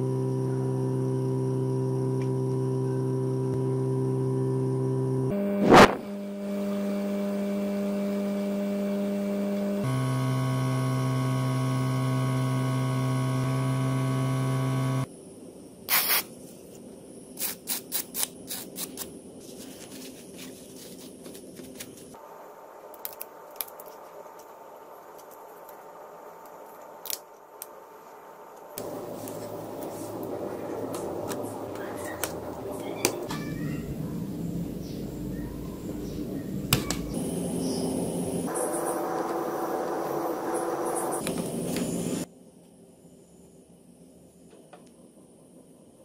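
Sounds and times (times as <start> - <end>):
small electric motor humming: 0.0 - 15.1, 37.1 - 42.3.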